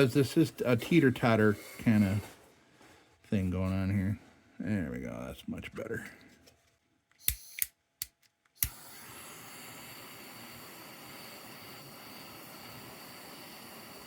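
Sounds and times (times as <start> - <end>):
gas torch flame hissing: 0.0 - 2.3, 8.6 - 14.0
gas torch igniter clicks: 7.2 - 14.0.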